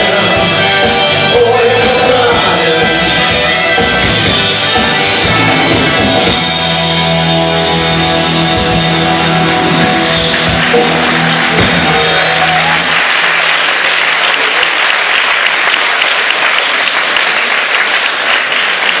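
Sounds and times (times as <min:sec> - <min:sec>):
live band with guitar: 0:00.0 - 0:13.9
audience applause: 0:07.6 - 0:19.0.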